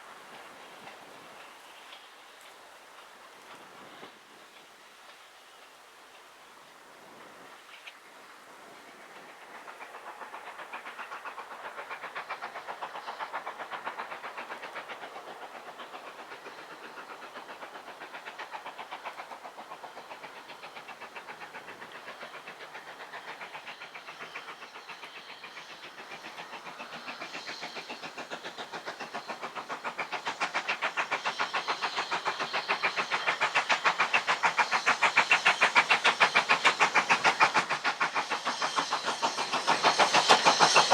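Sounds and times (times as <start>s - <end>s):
train running on track: 0.0s - 40.9s.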